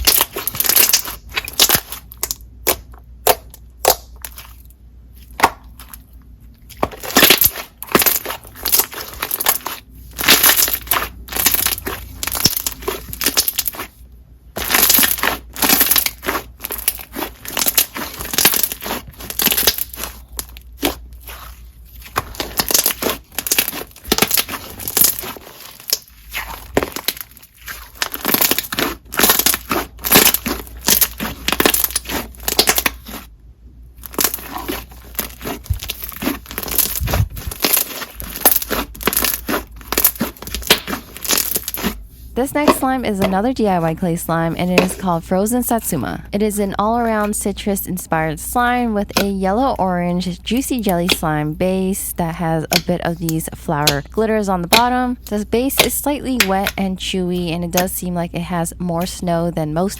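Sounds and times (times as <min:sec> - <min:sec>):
slime squished by hand: 0:00.0 - 0:06.0, 0:06.6 - 0:14.0, 0:14.6 - 0:33.3, 0:34.0 - 0:42.0.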